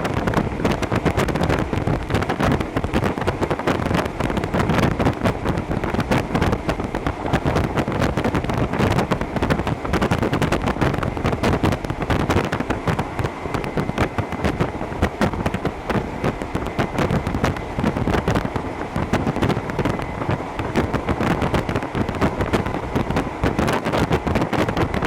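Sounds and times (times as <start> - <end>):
faint steady whine: 0.0 - 25.0
train wheels rumbling on rails: 0.0 - 25.0.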